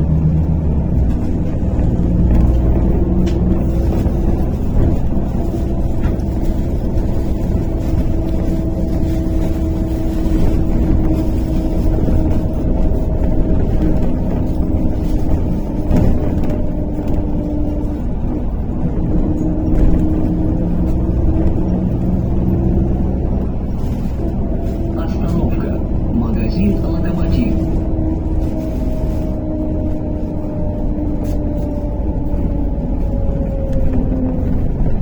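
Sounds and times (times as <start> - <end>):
bus engine and road rumble: 0.0 - 35.0
constant whine: 22.7 - 35.0.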